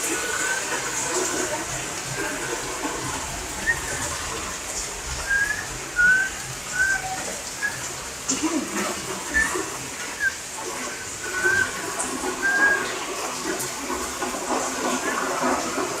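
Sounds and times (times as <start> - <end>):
heavy rain hissing: 0.0 - 16.0
parrot whistling: 3.6 - 4.4, 5.2 - 8.0, 9.3 - 13.0.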